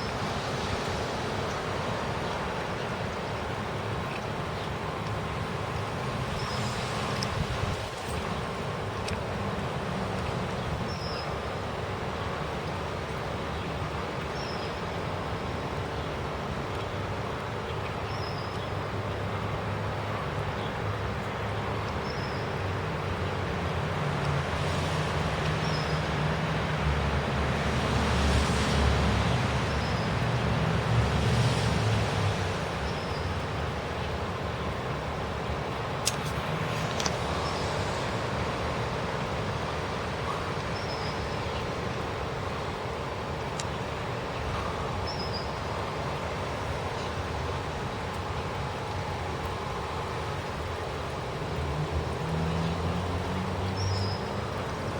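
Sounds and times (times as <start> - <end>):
road traffic hiss: 0.0 - 54.9
vehicle engine rumble passing: 23.0 - 44.9, 45.7 - 54.9.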